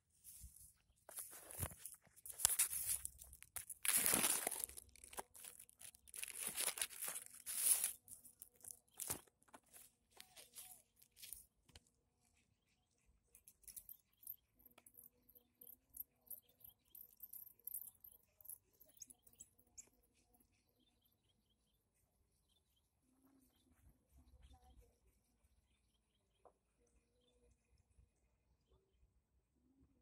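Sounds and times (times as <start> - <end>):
rustling and crinkling handling noise: 0.0 - 11.9
faint clicks and crackles: 0.2 - 20.8.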